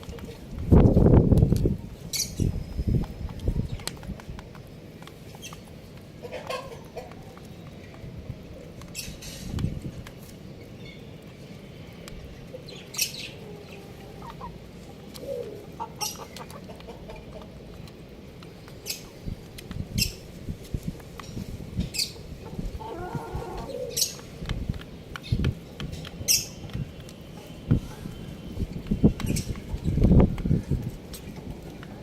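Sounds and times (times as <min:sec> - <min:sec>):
chickens pecking on hard surface: 0:00.0 - 0:32.0
chickens clucking: 0:01.4 - 0:08.0, 0:13.2 - 0:17.9, 0:21.8 - 0:24.8.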